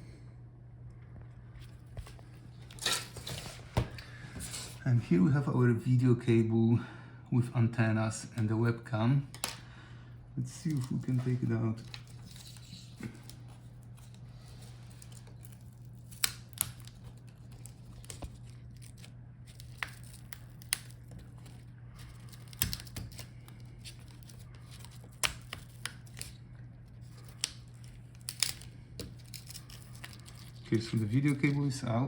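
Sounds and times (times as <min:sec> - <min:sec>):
steady low hum: 0:00.0 - 0:32.0
crinkling and tearing: 0:10.5 - 0:31.7.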